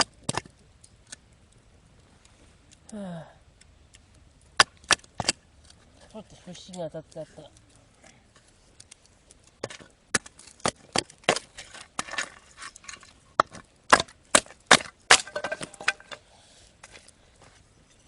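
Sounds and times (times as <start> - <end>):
wood splitting knocks and cracks: 0.0 - 0.6, 4.6 - 5.5, 9.0 - 16.2.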